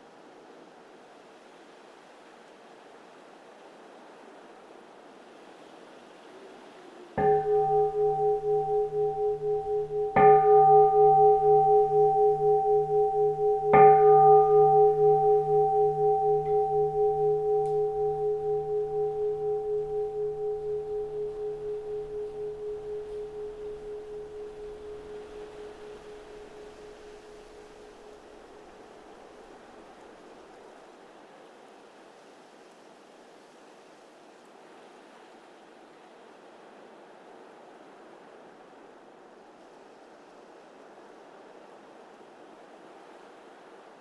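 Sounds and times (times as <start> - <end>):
bowl bell struck: 7.2 - 28.5
long wavering bell ring: 7.2 - 28.7.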